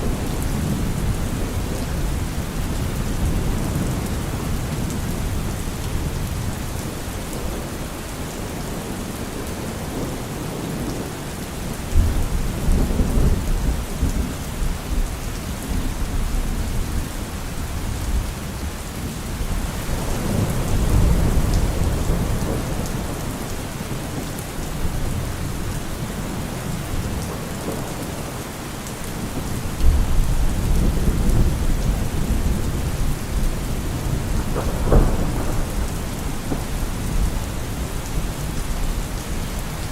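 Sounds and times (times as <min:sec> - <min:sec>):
steady rain falling: 0:00.0 - 0:39.9
thunder rumbling: 0:19.4 - 0:28.4, 0:29.0 - 0:39.9.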